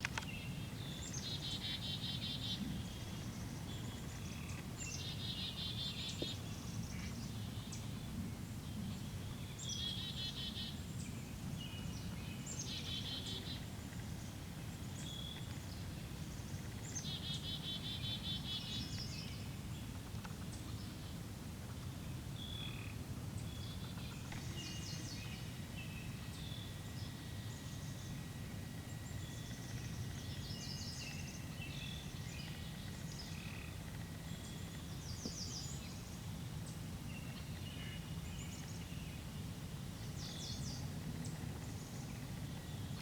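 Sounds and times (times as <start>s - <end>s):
songbird singing trill: 0.0s - 8.0s, 8.8s - 19.9s, 28.9s - 43.0s.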